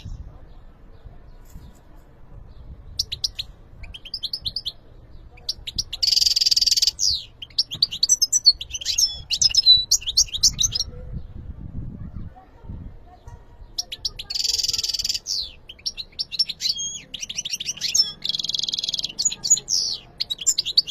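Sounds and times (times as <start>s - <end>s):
goldfinch singing: 3.0s - 10.9s, 13.7s - 20.9s.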